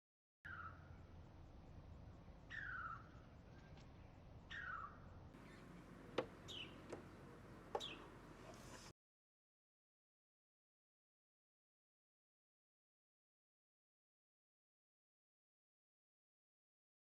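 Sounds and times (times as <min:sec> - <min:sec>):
faint bird calls: 0:00.5 - 0:01.0, 0:02.5 - 0:08.9.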